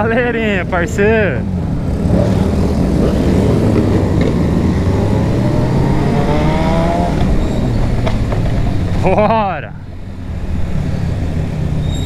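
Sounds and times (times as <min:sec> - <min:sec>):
motorcycle accelerating: 0:00.0 - 0:09.2
motorcycle engines running: 0:00.0 - 0:11.7.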